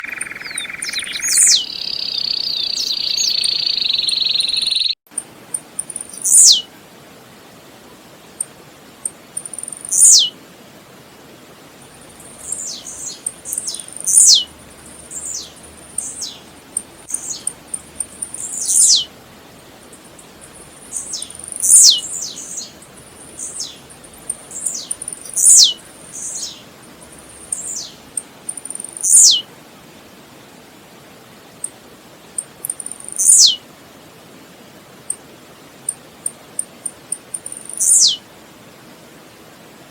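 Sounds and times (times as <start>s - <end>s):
bird singing sharp notes: 0.0s - 5.0s, 12.3s - 16.4s, 20.8s - 26.6s, 37.5s - 38.2s
loud steady hiss: 0.0s - 39.9s.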